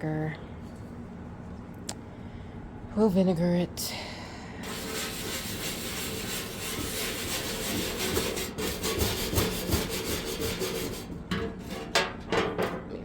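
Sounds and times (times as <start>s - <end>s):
scrubbing a surface: 4.6s - 11.2s.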